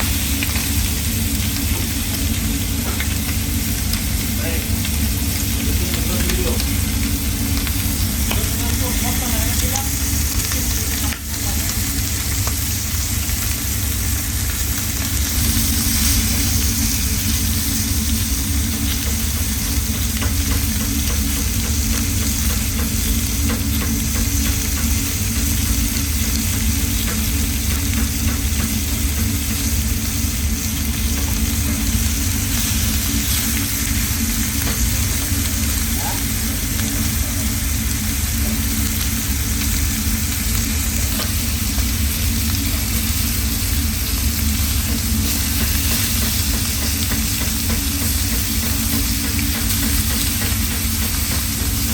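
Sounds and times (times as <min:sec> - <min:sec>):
food sizzling in a pan: 0:00.0 - 0:51.9
steady low hum: 0:00.0 - 0:51.9
utensil ticking against pan: 0:18.8 - 0:29.6.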